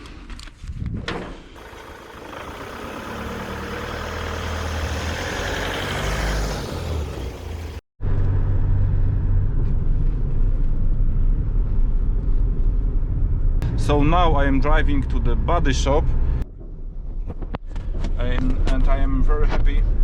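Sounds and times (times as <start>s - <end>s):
road rumble: 1.4s - 20.0s
vehicle engine running: 1.6s - 16.4s.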